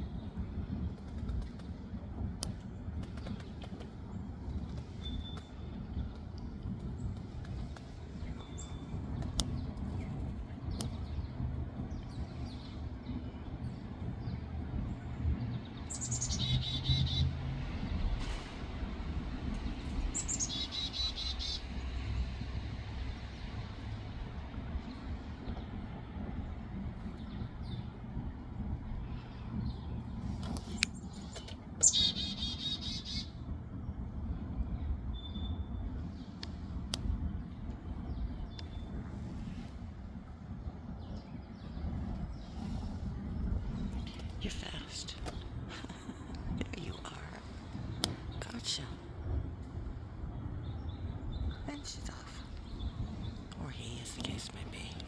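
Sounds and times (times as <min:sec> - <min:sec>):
small birds chirping: 0:00.0 - 0:18.2, 0:19.1 - 0:22.3, 0:23.1 - 0:34.0, 0:40.6 - 0:55.0
low traffic rumble: 0:00.0 - 0:55.0
small bird trilling: 0:20.1 - 0:21.6, 0:31.8 - 0:33.3.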